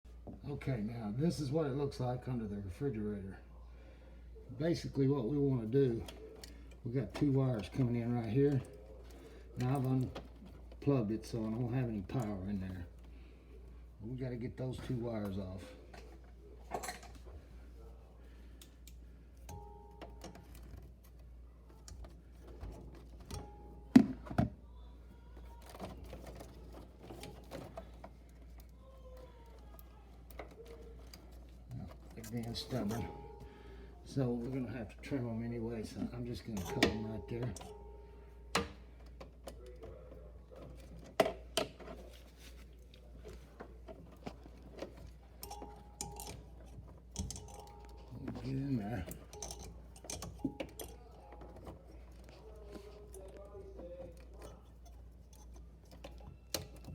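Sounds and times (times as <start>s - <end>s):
tool and wires rattling: 4.8s - 13.3s, 14.0s - 24.5s, 25.4s - 56.9s
hands clicking wire connectors: 44.8s - 51.1s.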